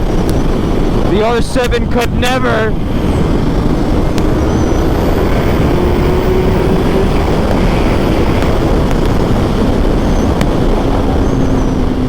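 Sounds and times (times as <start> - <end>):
motorcycle engine running: 0.0 - 12.0
wind rush on microphone: 0.0 - 12.0.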